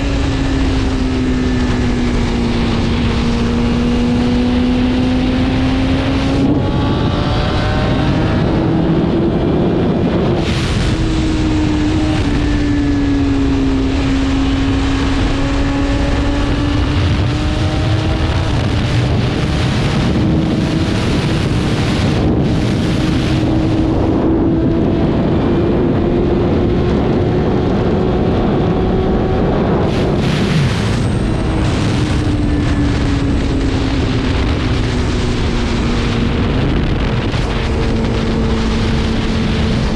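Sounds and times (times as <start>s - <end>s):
motorcycle engine at high revs: 0.0s - 39.9s
wind rushing over microphone: 0.0s - 39.9s.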